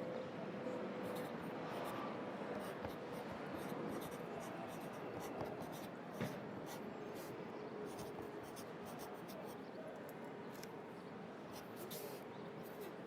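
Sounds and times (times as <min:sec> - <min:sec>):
pencil scratching on paper: 0:02.6 - 0:07.3, 0:07.9 - 0:09.5, 0:11.5 - 0:13.0.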